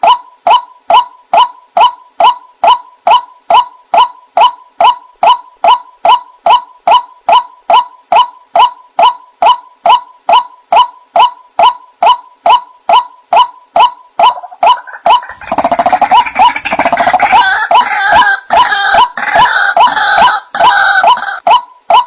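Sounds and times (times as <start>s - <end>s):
waterhen calling: 14.2s - 21.5s.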